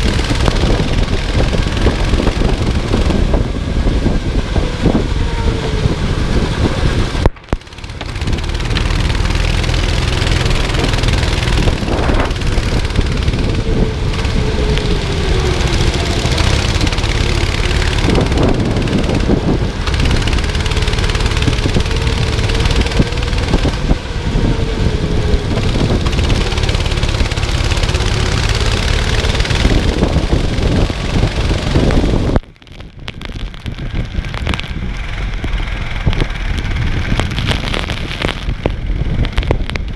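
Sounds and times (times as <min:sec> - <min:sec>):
go-kart engine racing: 0:00.0 - 0:39.9
wind noise on microphone: 0:00.0 - 0:39.9.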